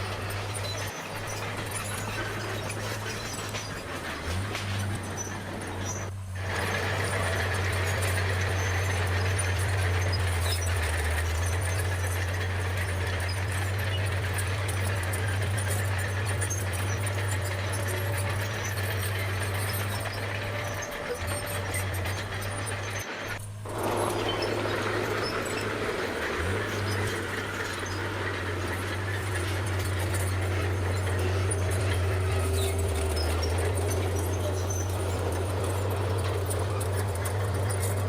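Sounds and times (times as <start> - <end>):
bulldozer engine drone: 0.0 - 38.0
thin high squeal: 0.0 - 38.0.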